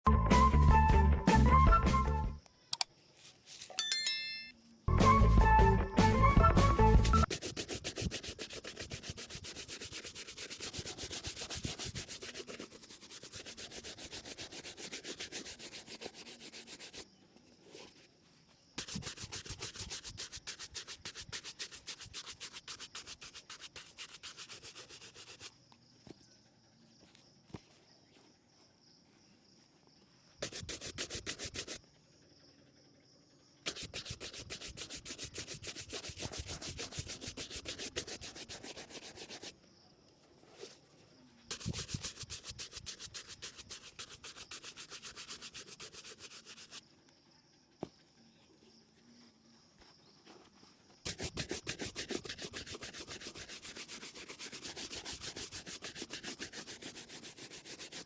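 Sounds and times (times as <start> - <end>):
shoe buffing scrubbing strokes: 7.0 - 17.1, 18.8 - 25.6, 30.4 - 31.8, 33.7 - 39.5, 41.5 - 46.8, 51.0 - 58.0.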